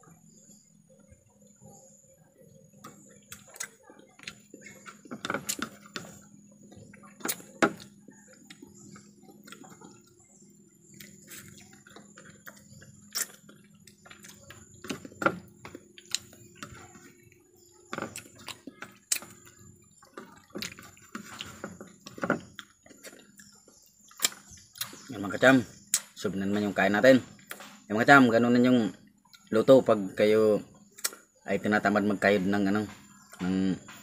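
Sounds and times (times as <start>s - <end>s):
wet chewing and lip smacks: 2.4s - 17.5s, 18.2s - 25.2s, 25.8s - 26.2s, 29.2s - 29.5s, 30.8s - 31.4s
sharp mouth clicks: 31.0s - 31.2s.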